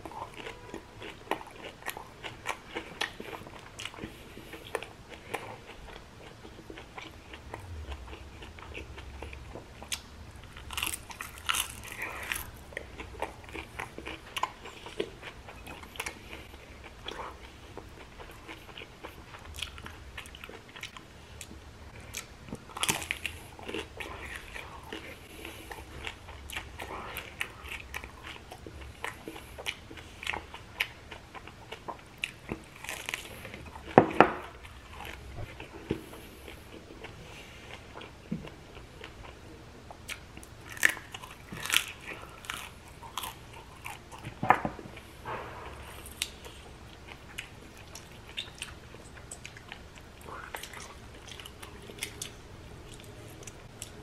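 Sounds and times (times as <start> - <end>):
crunchy chewing: 0.0 - 54.0.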